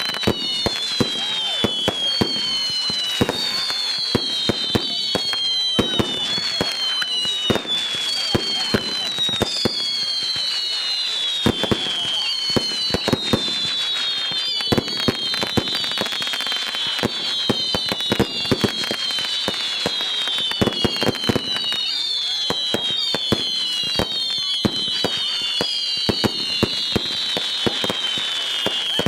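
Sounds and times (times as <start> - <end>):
firework bangs and crackles: 0.0 - 29.0
firework whistles: 0.0 - 29.0.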